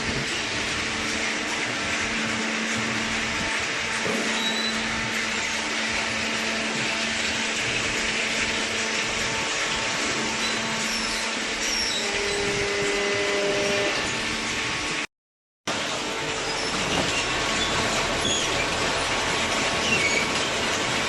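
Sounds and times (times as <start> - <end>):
hydraulic baling press drone: 0.0 - 15.0.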